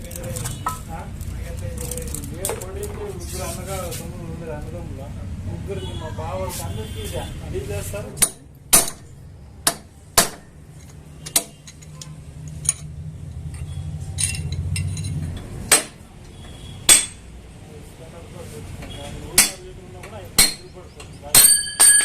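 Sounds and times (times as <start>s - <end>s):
sharp ringing metallic knocks: 16.8s - 17.3s, 19.3s - 19.7s, 20.4s - 22.0s.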